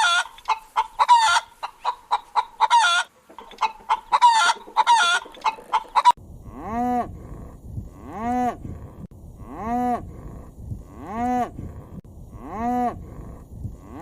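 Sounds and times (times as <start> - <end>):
chicken clucking and squawking: 0.0 - 6.2
cow mooing: 6.4 - 7.2, 7.9 - 8.8, 9.4 - 11.7, 12.3 - 13.2.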